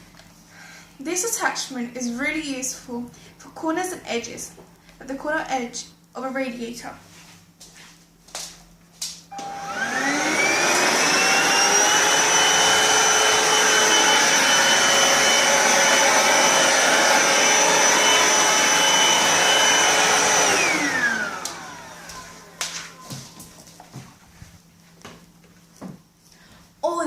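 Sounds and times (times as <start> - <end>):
stick vacuum motor whine: 9.3 - 23.5.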